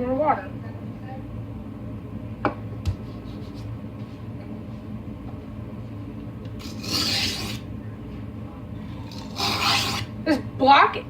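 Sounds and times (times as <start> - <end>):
steady low hum: 0.0 - 11.0
knife scraping on whetstone: 6.6 - 7.7, 9.0 - 10.1.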